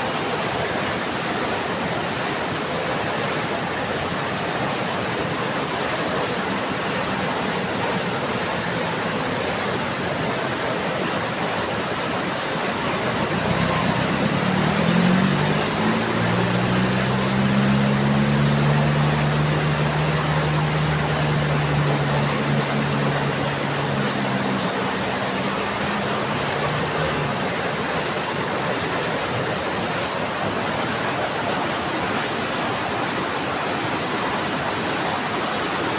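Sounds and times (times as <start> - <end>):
low engine hum: 12.6 - 28.6
heavy rain falling: 12.7 - 27.9.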